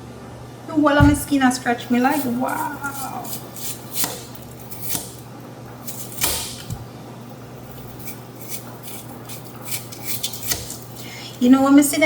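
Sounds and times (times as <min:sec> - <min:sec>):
steady low hum: 0:00.0 - 0:12.0
kitchen scrapes and clicks: 0:05.8 - 0:06.8, 0:07.6 - 0:11.5.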